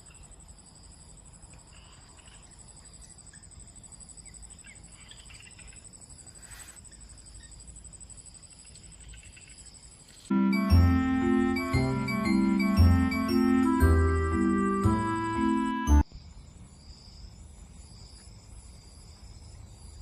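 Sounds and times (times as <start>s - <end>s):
insects trilling: 0.0s - 10.3s.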